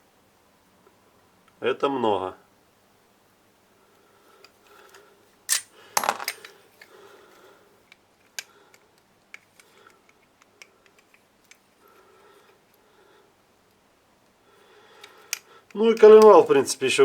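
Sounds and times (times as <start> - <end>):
metal engine parts clinking: 5.5 - 6.6.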